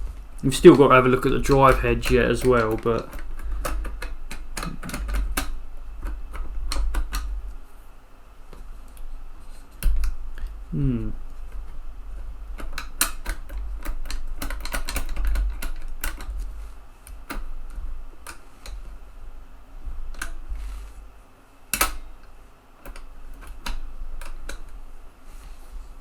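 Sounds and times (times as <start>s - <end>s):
handling bumps: 0.0s - 7.7s
floppy drive mechanism clicking: 0.3s - 7.6s, 11.5s - 19.3s, 21.7s - 25.0s.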